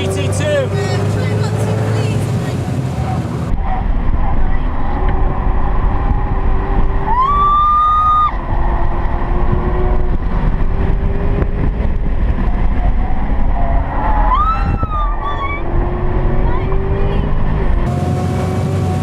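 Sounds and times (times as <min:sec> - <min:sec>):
car engine droning: 0:00.0 - 0:19.0.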